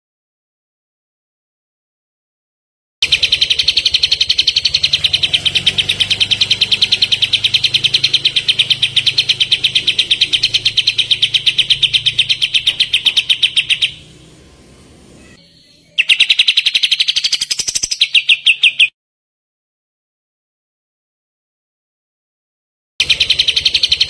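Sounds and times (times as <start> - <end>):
songbird rapid trill: 3.0 - 14.6, 15.2 - 18.9, 23.0 - 24.0.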